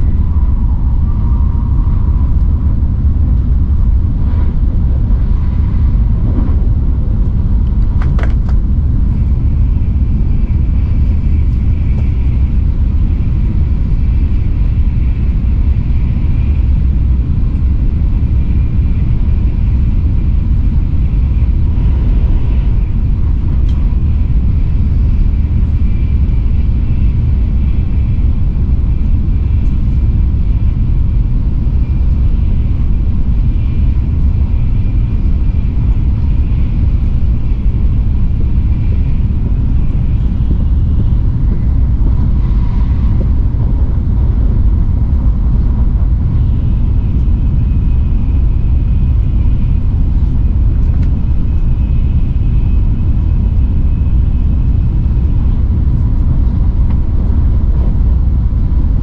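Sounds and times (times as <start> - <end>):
faint high whine: 0.0 - 59.0
train rumble inside cabin: 0.0 - 59.0.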